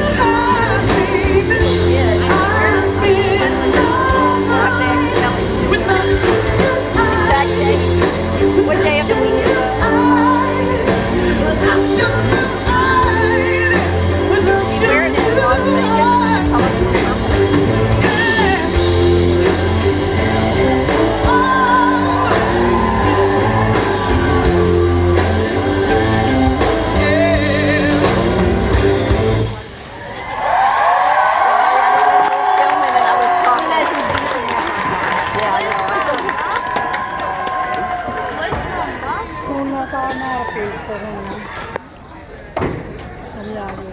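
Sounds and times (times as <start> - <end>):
man singing: 0.0 - 7.8, 8.4 - 23.3, 24.3 - 29.1
pop-rock band playing: 0.0 - 29.9.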